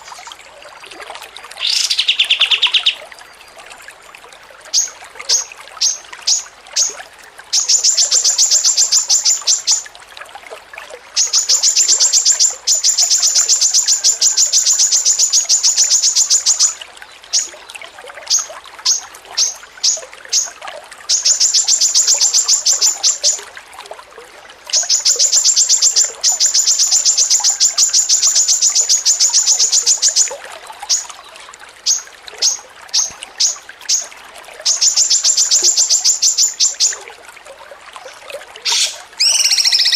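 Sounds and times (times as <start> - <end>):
songbird chattering trill: 38.7 - 39.9.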